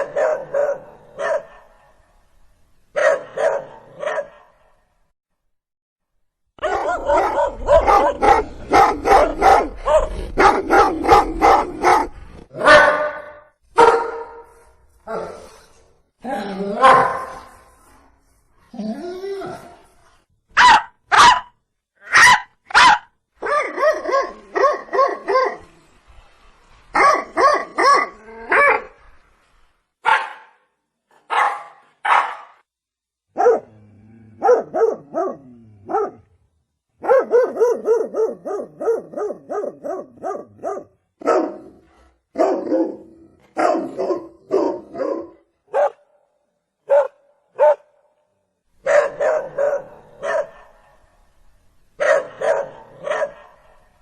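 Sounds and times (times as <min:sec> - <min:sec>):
dog barking: 0:00.0 - 0:02.0, 0:03.0 - 0:04.7, 0:06.6 - 0:14.5, 0:16.8 - 0:17.5, 0:20.6 - 0:25.6, 0:27.0 - 0:28.9, 0:30.0 - 0:30.6, 0:31.2 - 0:32.6, 0:33.3 - 0:33.8, 0:34.4 - 0:36.3, 0:37.0 - 0:46.2, 0:46.8 - 0:48.0, 0:48.8 - 0:51.1, 0:52.0 - 0:53.8.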